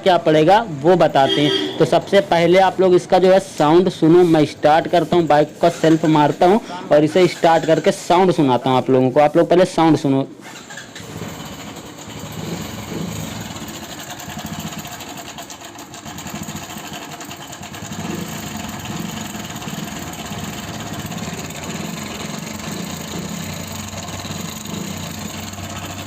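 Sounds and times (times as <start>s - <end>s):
motorcycle engine clattering: 10.5s - 26.0s.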